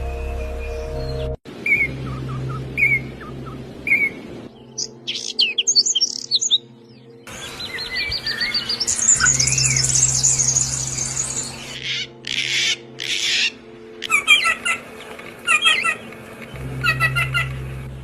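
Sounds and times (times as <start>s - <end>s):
songbirds twittering and chirping: 0.0s - 18.0s
harsh rasping bird calls: 7.3s - 17.9s.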